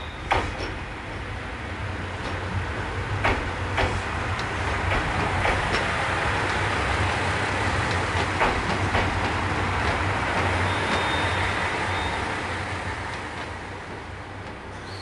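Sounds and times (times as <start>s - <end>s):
train wheels rumbling on rails: 0.0s - 15.0s
clicks over rail joints: 0.2s - 0.8s, 2.2s - 2.5s, 3.2s - 11.3s, 12.9s - 14.8s
high wheel squeal: 10.5s - 12.4s, 14.7s - 15.0s.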